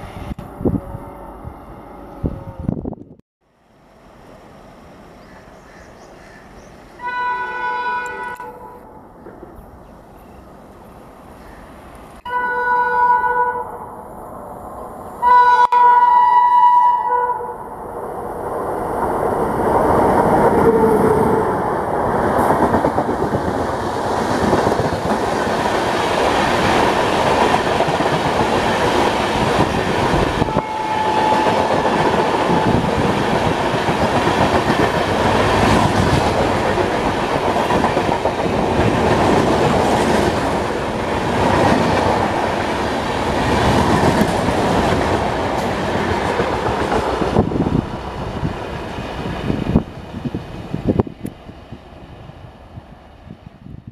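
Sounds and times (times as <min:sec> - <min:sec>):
train rushing past: 0:00.0 - 0:53.9
locomotive horn: 0:00.6 - 0:02.8, 0:07.0 - 0:09.0, 0:12.2 - 0:13.9, 0:15.2 - 0:17.6, 0:30.4 - 0:31.8.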